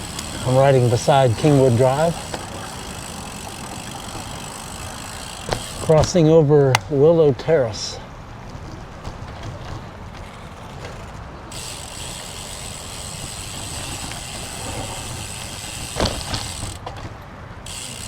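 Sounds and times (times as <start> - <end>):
bicycle freewheel buzzing: 0.0 - 5.9, 9.4 - 16.9, 17.6 - 18.0
road rumble: 0.0 - 18.0
wind: 0.0 - 18.0.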